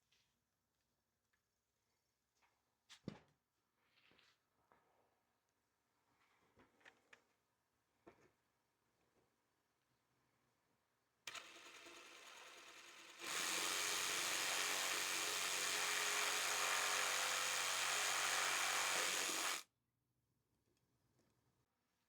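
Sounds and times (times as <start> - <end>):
electric power tool running: 11.3 - 19.6.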